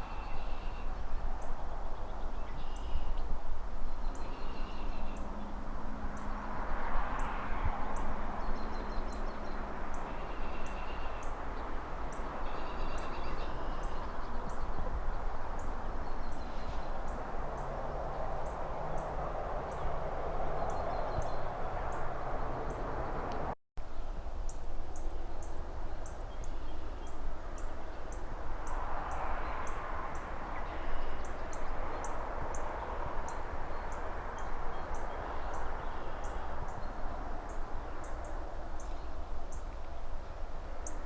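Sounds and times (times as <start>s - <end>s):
distant traffic: 0.0s - 41.0s
rustling trees: 0.0s - 41.0s.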